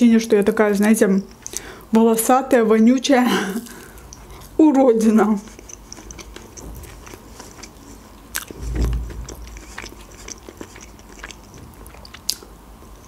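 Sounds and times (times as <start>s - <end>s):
close chewing of food: 2.8s - 13.0s
soft low thump: 8.6s - 9.5s.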